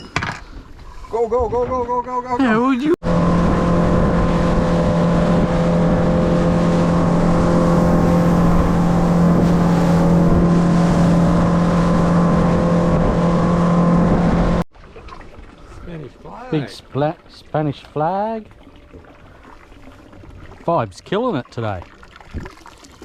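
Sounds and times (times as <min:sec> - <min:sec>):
wind and water rushing: 0:00.6 - 0:23.0
outboard motor running: 0:02.4 - 0:16.8.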